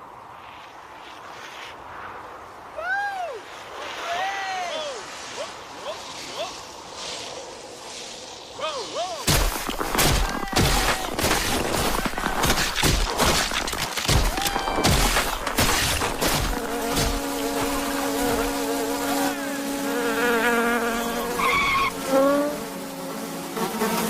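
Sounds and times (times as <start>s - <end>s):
insect wings buzzing: 14.6s - 24.0s
squeaky insect voices chirping: 20.9s - 22.0s.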